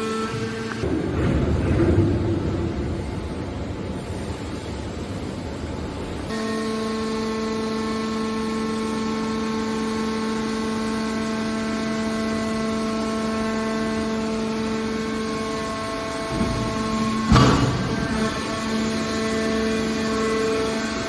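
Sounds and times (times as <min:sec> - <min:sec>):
machine hum: 0:00.0 - 0:21.0
rumbling noise: 0:00.3 - 0:06.2, 0:16.0 - 0:19.4.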